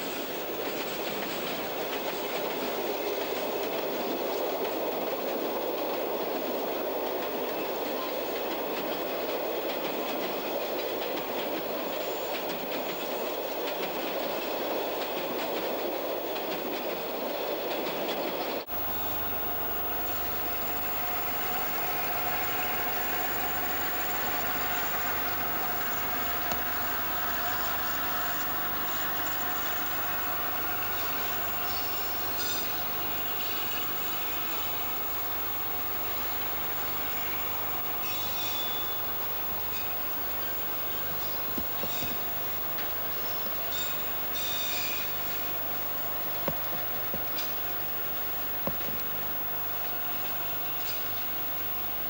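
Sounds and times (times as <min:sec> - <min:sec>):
freight train rolling through yard: 0:00.0 - 0:52.0
steady high tones: 0:18.7 - 0:41.5.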